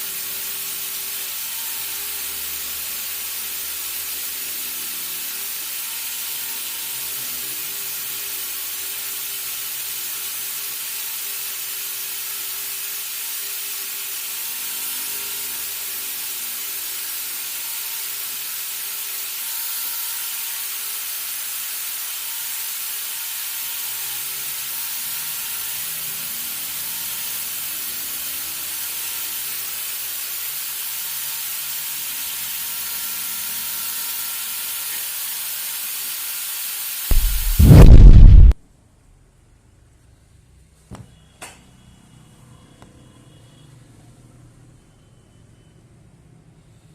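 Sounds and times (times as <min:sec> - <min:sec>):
welding torch flame hissing: 0:34.2 - 0:38.6.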